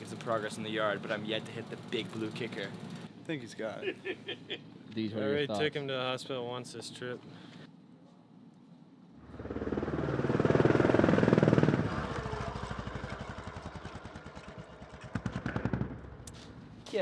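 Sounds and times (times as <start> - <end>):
motorbike engine passing: 9.2 - 16.6.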